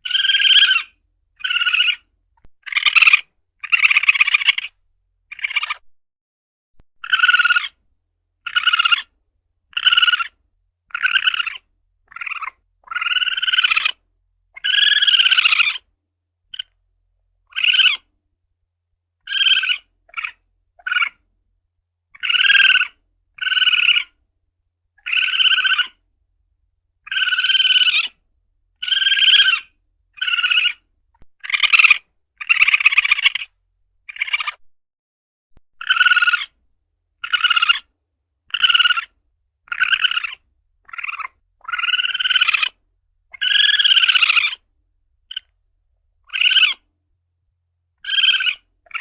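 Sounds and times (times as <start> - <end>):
civet calling: 0.0 - 5.9, 7.0 - 7.8, 8.4 - 9.1, 9.7 - 15.9, 16.5 - 16.8, 17.4 - 18.1, 19.2 - 21.3, 22.1 - 24.2, 25.0 - 26.0, 27.0 - 28.2, 28.8 - 34.6, 35.8 - 36.6, 37.2 - 37.9, 38.5 - 45.6, 46.2 - 46.9, 48.0 - 49.0.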